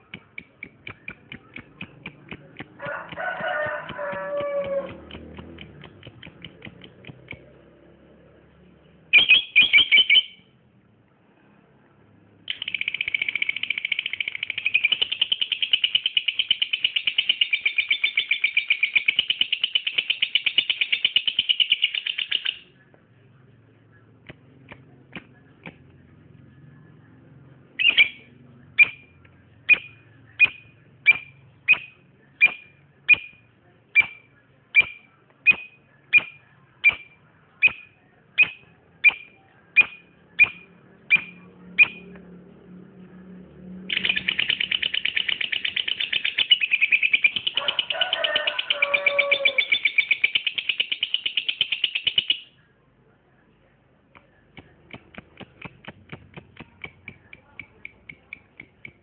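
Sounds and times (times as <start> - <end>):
lovebird chirping and trilling: 9.1 - 10.5, 12.5 - 22.7, 27.8 - 33.4, 34.0 - 42.2, 43.8 - 52.6.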